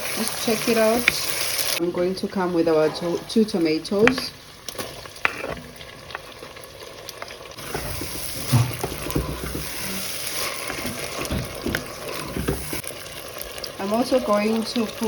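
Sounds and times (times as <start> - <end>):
onions sizzling in oil: 0.0 - 15.0
stirring: 3.0 - 13.8
low knocks: 7.6 - 9.8, 10.8 - 12.8.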